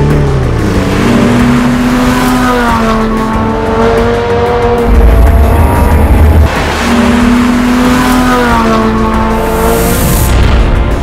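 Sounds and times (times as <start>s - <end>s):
car engine revving: 0.0s - 11.0s
deep loud rumble: 4.8s - 7.9s.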